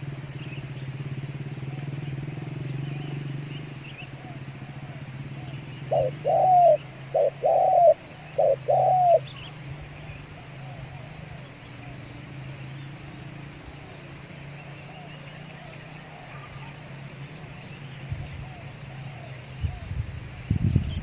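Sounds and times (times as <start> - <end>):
dove cooing: 4.0 - 12.2, 14.8 - 17.6, 18.3 - 20.4.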